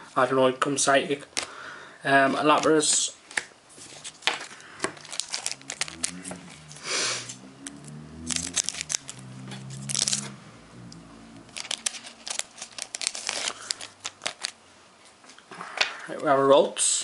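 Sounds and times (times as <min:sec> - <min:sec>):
foil wrapper crinkling and tearing: 0:03.9 - 0:07.3, 0:08.2 - 0:10.3, 0:11.5 - 0:14.6
cards clicking and snapping: 0:07.6 - 0:10.3, 0:11.5 - 0:14.6.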